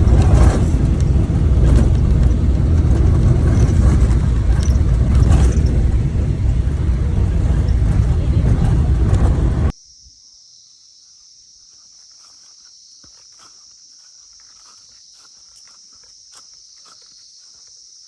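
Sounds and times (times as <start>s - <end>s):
loud vehicle rumble: 0.0s - 9.7s
faint clip-clop footfalls: 11.6s - 18.0s.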